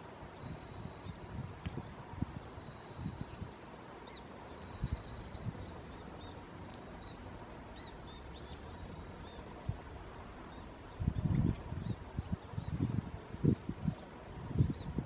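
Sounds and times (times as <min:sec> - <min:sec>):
outdoor background noise: 0:00.0 - 0:15.0
bird chirping: 0:04.0 - 0:09.5.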